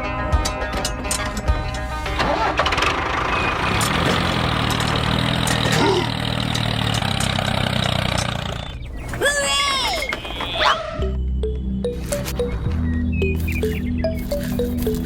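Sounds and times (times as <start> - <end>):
background music: 0.0 - 5.6, 9.7 - 15.0
tractor engine running: 0.0 - 10.6, 11.9 - 15.0.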